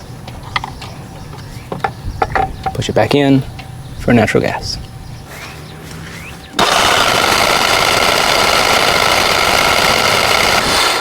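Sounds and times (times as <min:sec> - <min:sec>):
generator engine cranking: 0:05.2 - 0:11.0.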